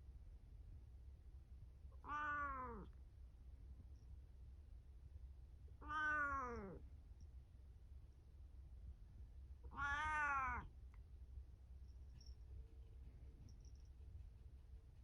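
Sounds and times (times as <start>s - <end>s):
cat meowing: 2.0s - 2.9s, 5.8s - 6.8s, 9.7s - 10.7s.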